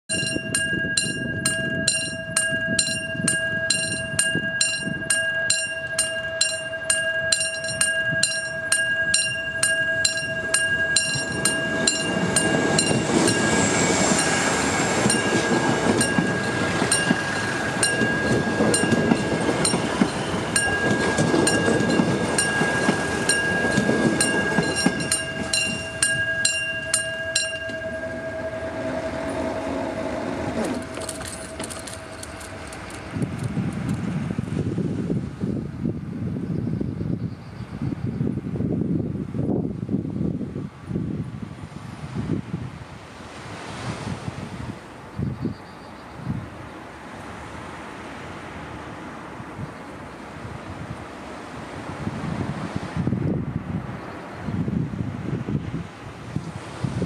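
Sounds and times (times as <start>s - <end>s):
level crossing bell ringing: 0.1s - 33.3s
train wheels rushing over rails: 9.3s - 35.3s.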